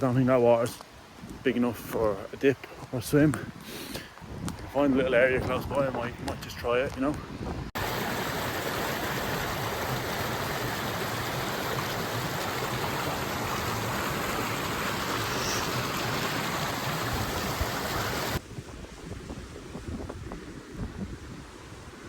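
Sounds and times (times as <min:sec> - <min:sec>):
wind on microphone: 0:03.3 - 0:08.0, 0:13.2 - 0:22.0
stream water rushing: 0:07.8 - 0:18.4.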